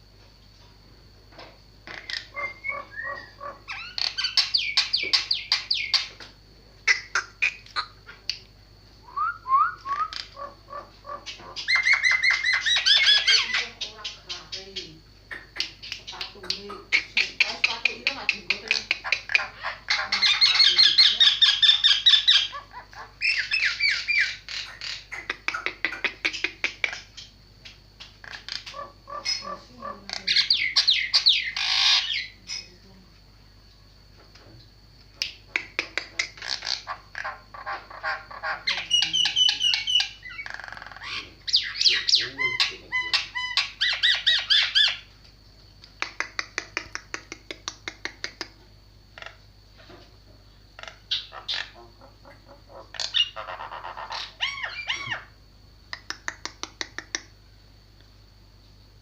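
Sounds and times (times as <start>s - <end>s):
faint steady high whine: 0.0s - 46.3s, 47.8s - 59.0s
starling chattering and squawking: 1.9s - 6.1s, 10.0s - 27.2s, 28.2s - 32.7s, 36.3s - 45.0s, 50.8s - 55.3s.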